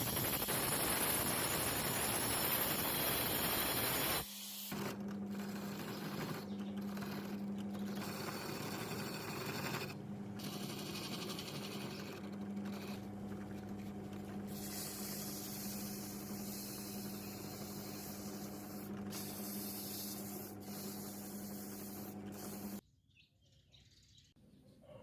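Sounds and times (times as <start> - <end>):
small motor humming: 0.0 - 22.8.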